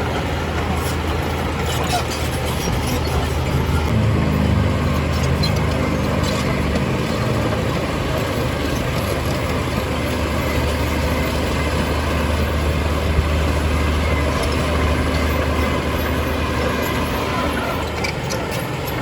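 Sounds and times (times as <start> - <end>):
diesel engine humming: 0.0 - 19.0
higher engine note: 3.2 - 17.9.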